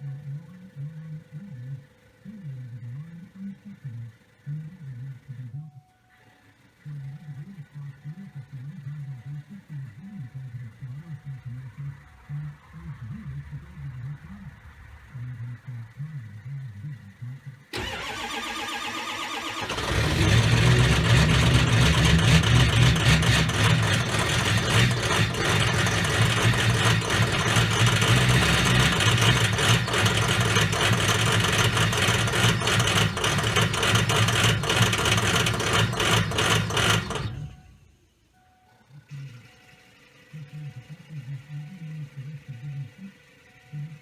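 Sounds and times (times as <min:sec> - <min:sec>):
starter motor cranking: 0:17.7 - 0:37.5
diesel engine clattering: 0:19.3 - 0:37.6.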